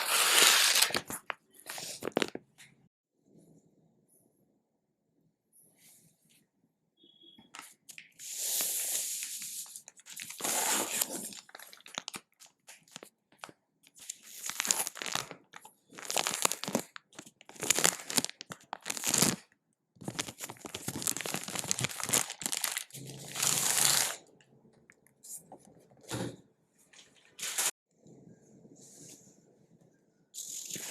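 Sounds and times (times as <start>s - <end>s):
packaging tearing and crinkling: 0.0s - 2.4s, 10.1s - 13.0s, 14.2s - 19.4s, 20.0s - 24.2s.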